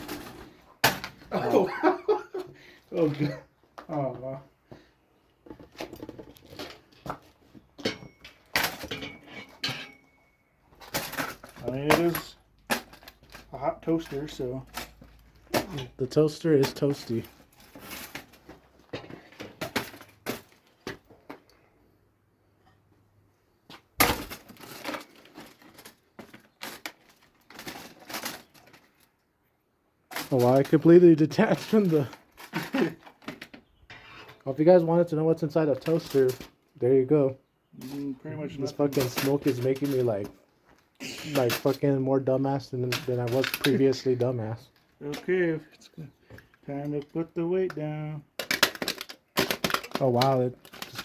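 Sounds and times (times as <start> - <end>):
toaster metal parts clattering: 7.8 - 10.1, 38.7 - 40.3, 42.9 - 44.1, 48.4 - 51.0.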